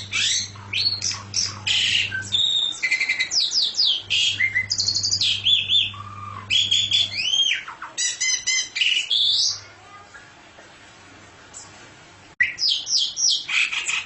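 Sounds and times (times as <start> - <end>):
songbird singing: 0.0 - 9.6, 12.4 - 14.0.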